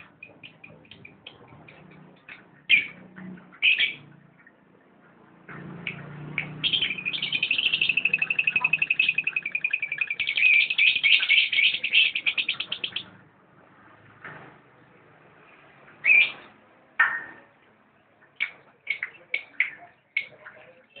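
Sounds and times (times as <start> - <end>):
lovebird chirps: 6.4 - 13.1
lovebird chattering trill: 6.6 - 13.1.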